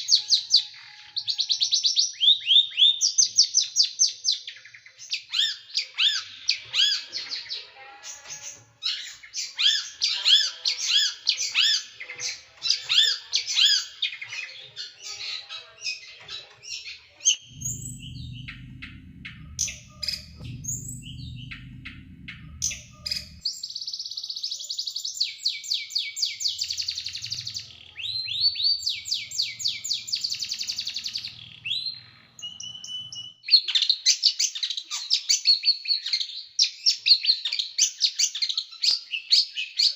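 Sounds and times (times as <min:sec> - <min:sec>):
low hum: 0:17.4 - 0:23.5.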